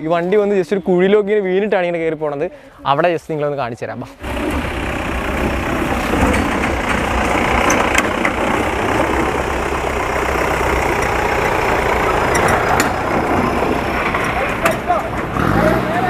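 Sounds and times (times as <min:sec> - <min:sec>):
vehicle engine rumbling: 0:04.1 - 0:16.0.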